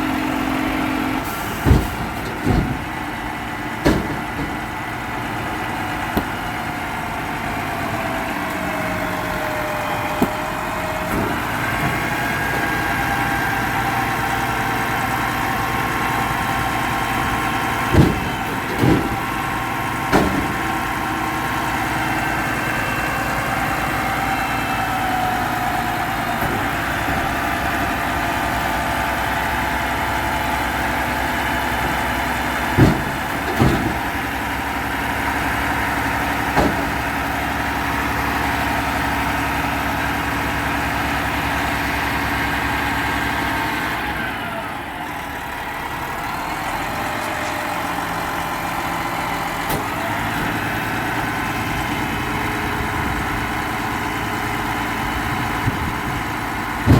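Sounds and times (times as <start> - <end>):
garbage truck engine running: 0.0 - 56.9
sharp bangs: 16.8 - 21.9.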